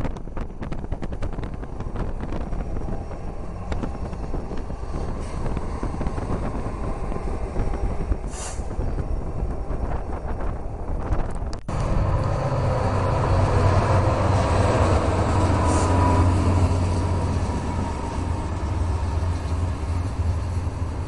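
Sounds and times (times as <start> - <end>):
locomotive heavy rumble: 0.0 - 21.0
brief hiss: 8.3 - 8.7.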